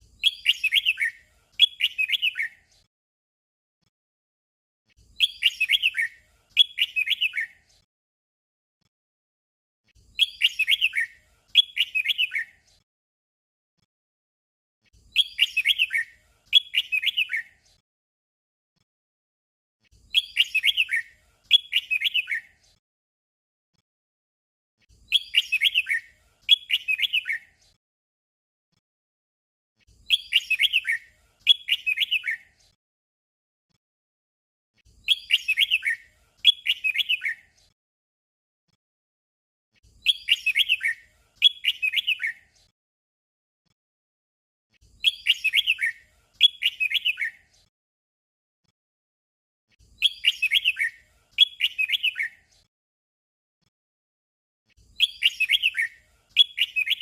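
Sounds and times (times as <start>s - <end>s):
bird singing whistled notes: 0.1s - 2.7s, 5.1s - 7.7s, 10.2s - 12.7s, 15.0s - 17.6s, 20.1s - 22.6s, 25.0s - 27.6s, 30.0s - 32.6s, 35.0s - 37.6s, 40.0s - 42.6s, 44.9s - 47.5s, 50.0s - 52.5s, 54.9s - 57.0s.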